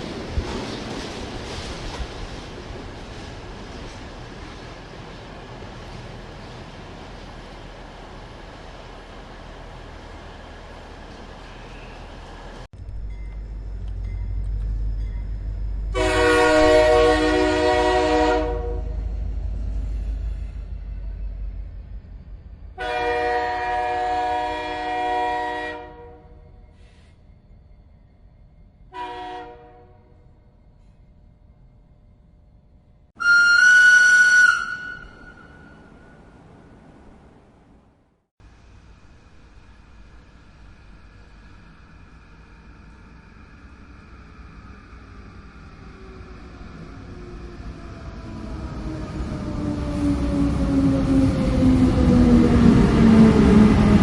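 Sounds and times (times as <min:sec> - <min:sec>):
train rumbling: 0:00.0 - 0:54.0
train horn blasts: 0:15.9 - 0:19.0, 0:22.8 - 0:26.4, 0:28.9 - 0:30.2, 0:33.2 - 0:35.8.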